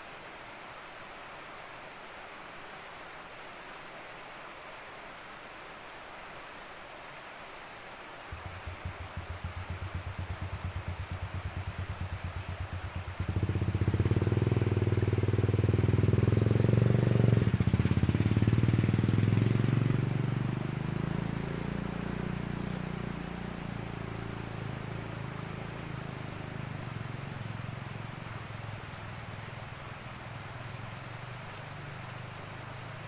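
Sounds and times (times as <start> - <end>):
small vehicle engine passing: 8.3 - 33.0.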